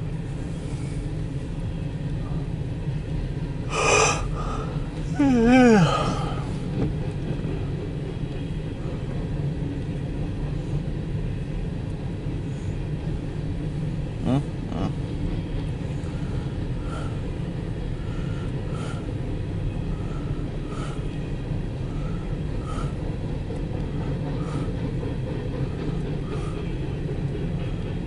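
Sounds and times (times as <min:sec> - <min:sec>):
train cars rumbling past: 0:00.0 - 0:28.0.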